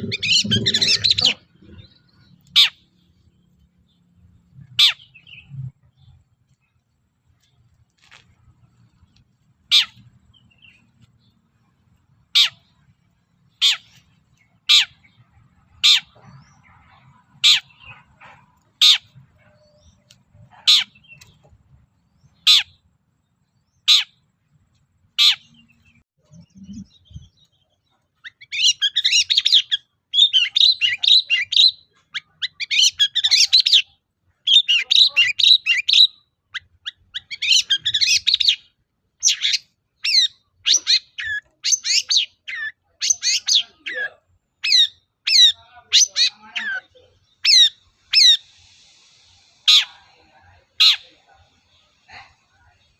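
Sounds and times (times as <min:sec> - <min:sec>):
rapid dense bird song: 0:00.0 - 0:52.9.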